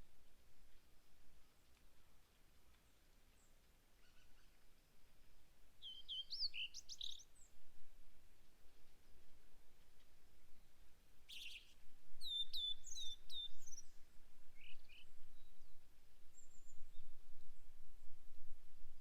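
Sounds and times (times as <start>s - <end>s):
faint low wind rumble: 0.0s - 19.0s
songbirds calling: 1.4s - 4.9s, 5.8s - 7.6s, 10.4s - 17.2s.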